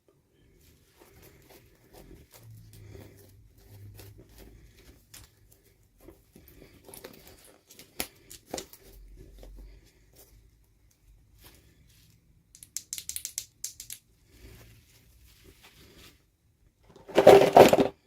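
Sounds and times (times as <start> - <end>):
sharp plastic clicks: 12.5 - 14.0
plastic packaging rustling: 16.9 - 18.0.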